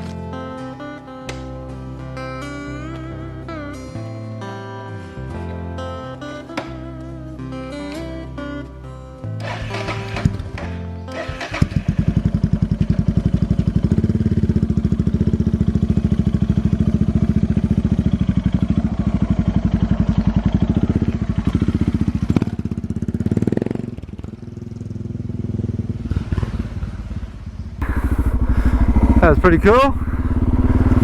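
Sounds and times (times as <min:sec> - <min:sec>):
motorcycle engine running: 0:09.4 - 0:31.0.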